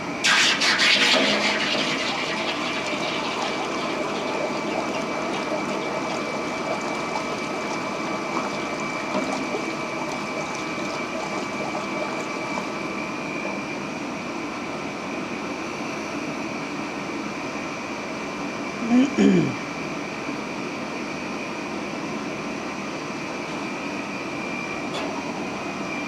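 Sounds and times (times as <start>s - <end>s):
water jet rushing: 0.0s - 13.9s
steady high whine: 0.0s - 14.3s.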